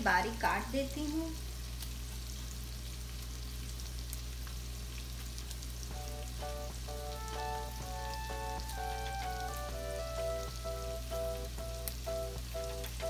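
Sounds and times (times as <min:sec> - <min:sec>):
vegetables sizzling in a pan: 0:00.0 - 0:13.0
background tune of short notes: 0:06.4 - 0:13.0.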